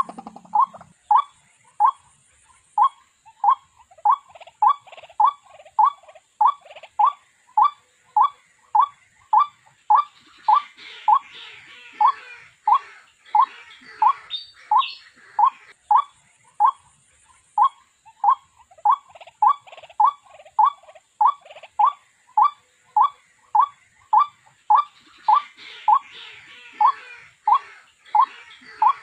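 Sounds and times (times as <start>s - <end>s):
rough chattering: 0.0s - 0.9s.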